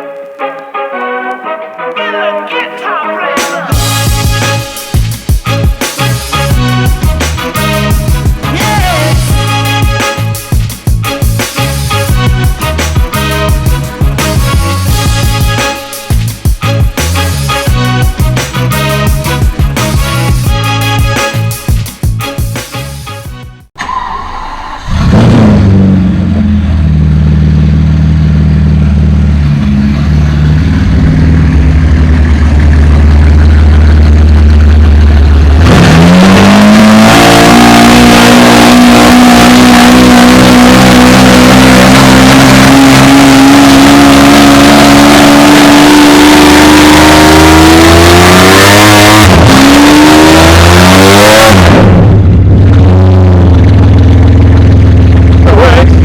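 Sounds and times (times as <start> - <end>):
car engine accelerating: 3.7 - 21.6, 23.8 - 56.0.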